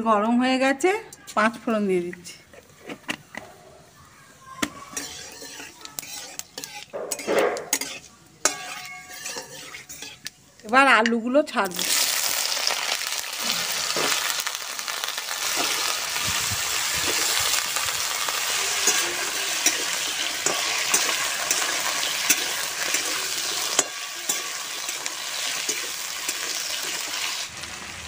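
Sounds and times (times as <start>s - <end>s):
potatoes sizzling in hot oil: 4.3s - 28.0s
metal spatula clicking and scraping: 4.6s - 11.2s, 18.1s - 27.4s.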